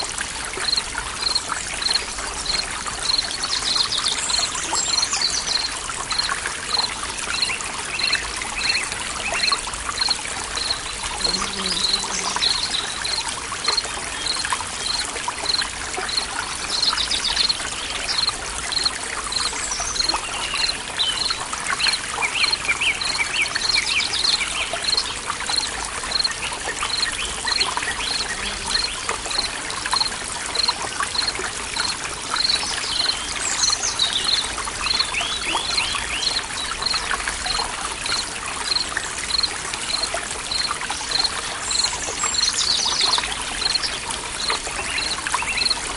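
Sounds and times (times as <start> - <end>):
stream water trickling and splashing: 0.0 - 45.9
birds chirping: 2.5 - 21.4.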